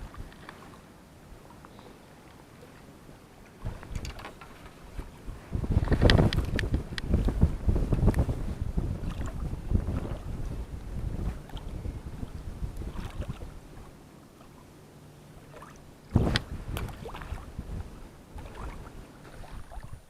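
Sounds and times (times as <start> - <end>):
wind buffeting microphone: 0.0 - 0.5, 3.6 - 14.0, 15.5 - 20.0.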